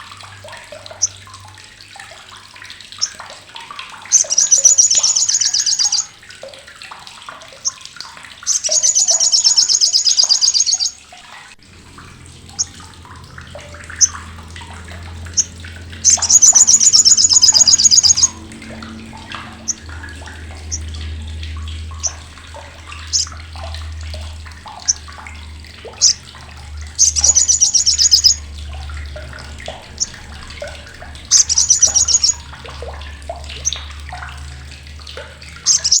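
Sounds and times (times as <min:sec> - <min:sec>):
steady low hum: 0:11.5 - 0:36.0.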